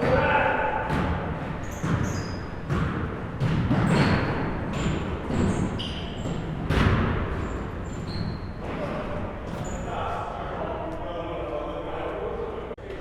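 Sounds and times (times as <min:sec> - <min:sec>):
basketball bouncing on gym floor: 0:00.0 - 0:09.8
shoe squeaks: 0:01.6 - 0:02.8, 0:03.8 - 0:06.6, 0:07.3 - 0:10.2.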